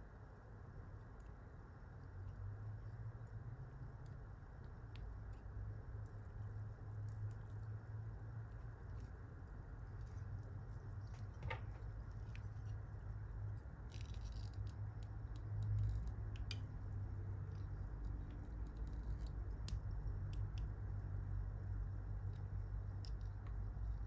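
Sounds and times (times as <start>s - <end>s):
low steady hum: 0.0s - 24.0s
small tool clicks and ticks: 13.9s - 20.8s.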